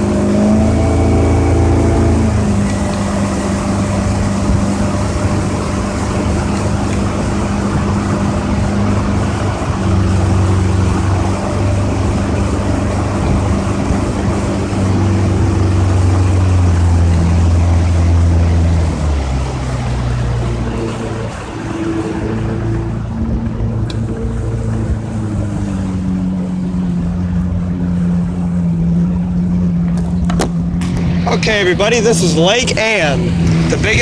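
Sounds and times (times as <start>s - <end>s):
outboard motor running: 0.0s - 34.0s
steady rushing noise: 0.0s - 34.0s.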